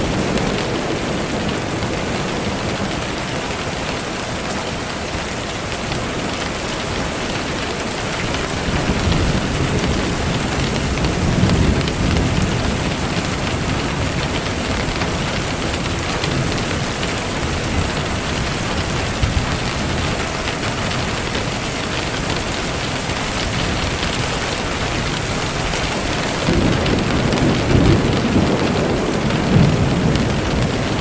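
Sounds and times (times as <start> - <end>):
rain falling: 0.0 - 31.0
low thunder rumble: 8.2 - 31.0.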